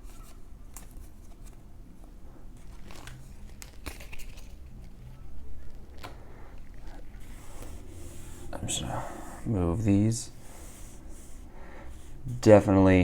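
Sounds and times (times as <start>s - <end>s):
foil wrappers crinkling and rustling: 0.0s - 7.3s
wrapper tearing: 2.5s - 7.2s.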